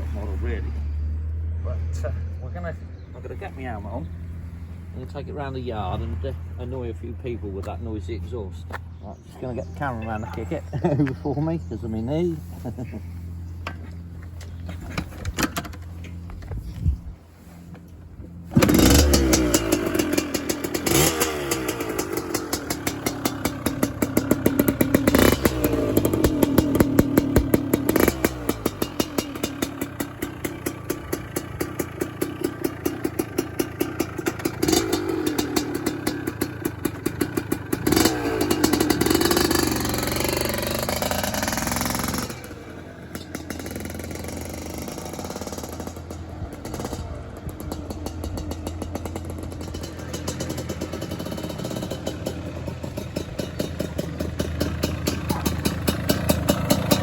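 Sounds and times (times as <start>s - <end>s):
two-stroke engine revving: 0.0s - 8.5s, 9.4s - 13.8s, 18.3s - 57.0s
motorcycle kick-start: 13.6s - 16.6s, 17.8s - 57.0s.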